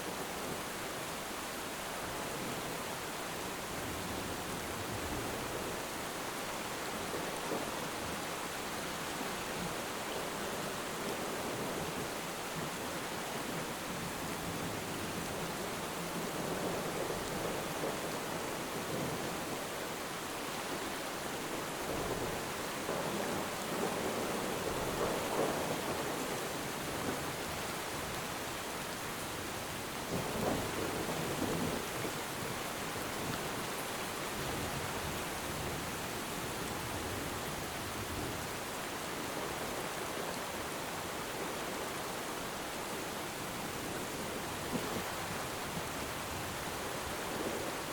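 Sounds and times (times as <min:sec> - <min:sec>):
heavy rain hissing: 0:00.0 - 0:47.9.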